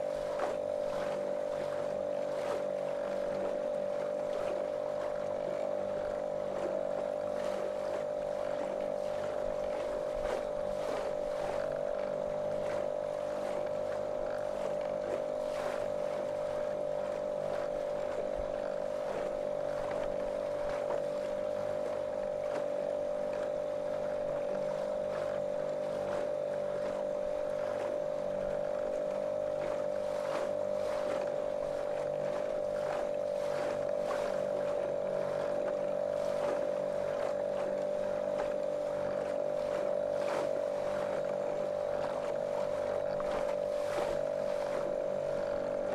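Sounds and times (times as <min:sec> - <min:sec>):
motorboat motor drone: 0:00.0 - 0:45.9
water splashing along hull: 0:00.0 - 0:45.9.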